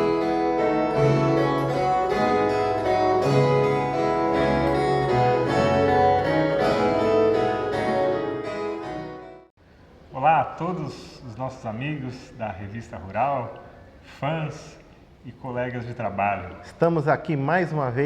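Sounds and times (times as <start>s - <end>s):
low bass notes: 0.0s - 9.4s
plucked steel string melody: 0.0s - 9.5s.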